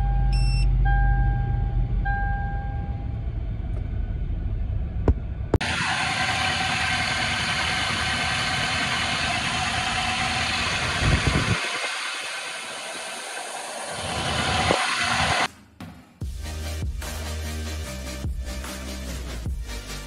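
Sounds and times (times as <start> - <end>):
car engine idling: 0.0 - 15.5.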